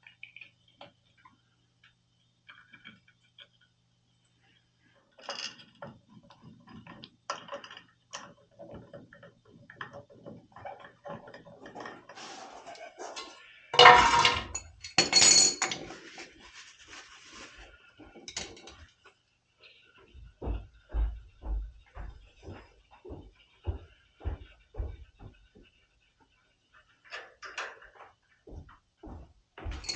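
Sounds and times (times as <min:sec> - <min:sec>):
metal tools clinking: 0:13.8 - 0:16.0.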